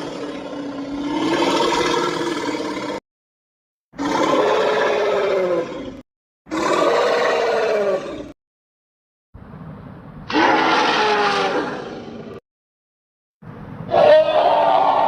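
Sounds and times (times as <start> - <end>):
drawn-out roaring calls: 0.0 - 3.0, 4.0 - 8.4, 10.3 - 12.3.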